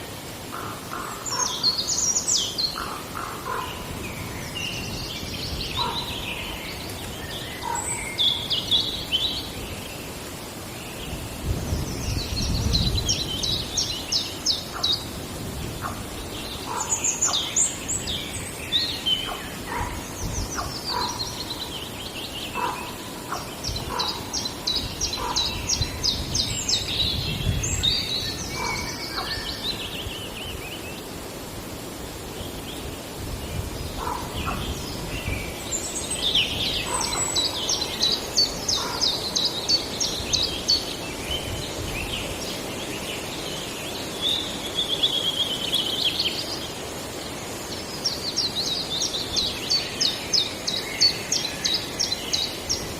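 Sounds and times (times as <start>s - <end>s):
songbirds singing: 0.0s - 52.9s.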